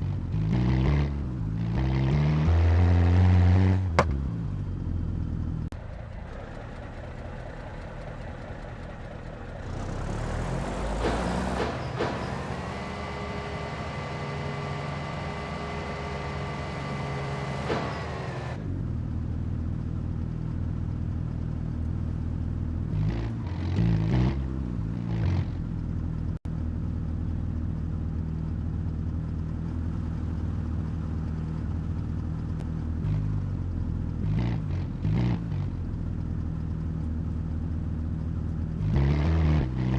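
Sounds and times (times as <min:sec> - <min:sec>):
truck engine idling: 0:03.9 - 0:23.0, 0:25.6 - 0:34.2, 0:35.7 - 0:38.8.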